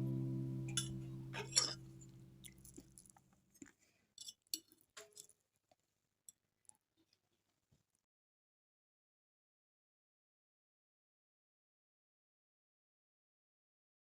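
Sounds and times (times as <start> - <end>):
acoustic guitar chord ringing: 0.0 - 2.2.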